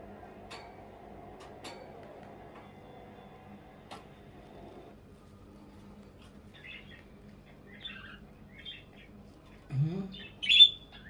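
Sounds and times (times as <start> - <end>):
budgerigars chirping and twittering: 6.5 - 9.1, 10.1 - 11.0
loud sharp bird chirp: 10.2 - 11.0.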